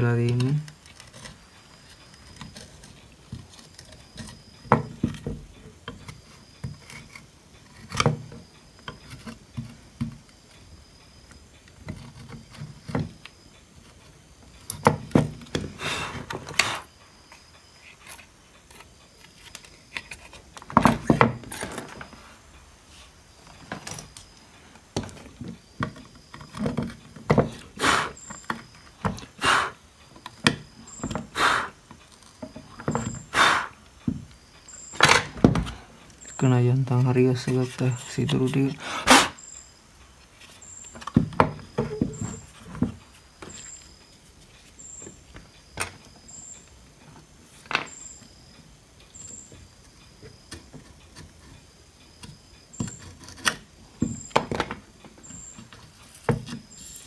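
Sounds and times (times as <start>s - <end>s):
scraping bursts: 27.7s - 28.3s, 29.3s - 29.8s, 31.3s - 31.8s, 33.3s - 33.8s, 38.8s - 39.4s.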